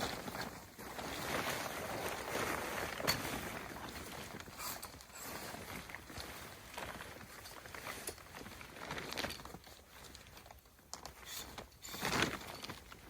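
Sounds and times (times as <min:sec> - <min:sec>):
rustling and crunching in snow: 0:00.0 - 0:10.4.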